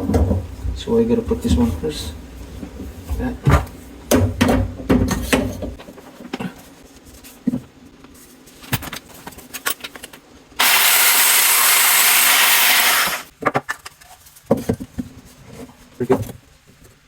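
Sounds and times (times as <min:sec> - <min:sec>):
loud rushing hiss: 0:10.6 - 0:13.3.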